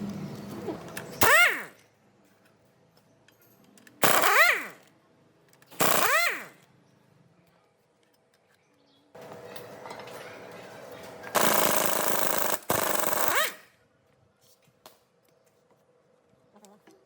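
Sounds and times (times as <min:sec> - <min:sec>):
impact wrench rattling and whining: 0:00.5 - 0:01.8, 0:03.8 - 0:04.9, 0:05.6 - 0:06.7, 0:11.2 - 0:13.8.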